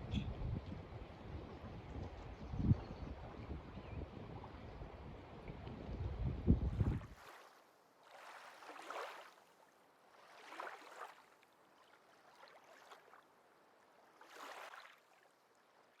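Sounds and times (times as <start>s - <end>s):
water lapping at shore: 0.0s - 16.0s.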